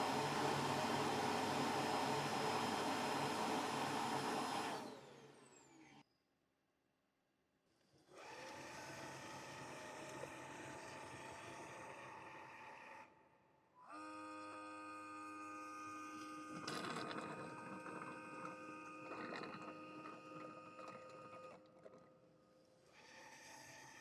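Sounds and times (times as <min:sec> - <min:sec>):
motor whine: 0:00.0 - 0:06.0
steady whirring: 0:00.0 - 0:06.0.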